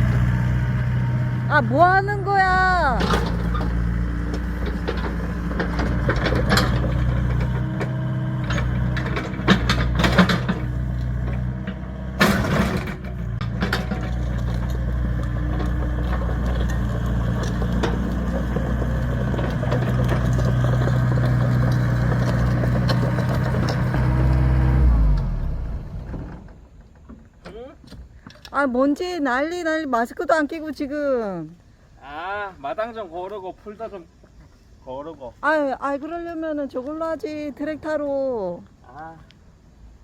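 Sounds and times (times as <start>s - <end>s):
excavator diesel engine running: 0.0s - 26.8s.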